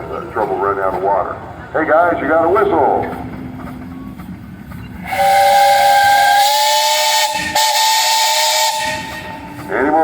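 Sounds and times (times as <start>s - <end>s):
steam hissing: 2.4s - 10.0s
steam whistle blast: 5.1s - 9.2s.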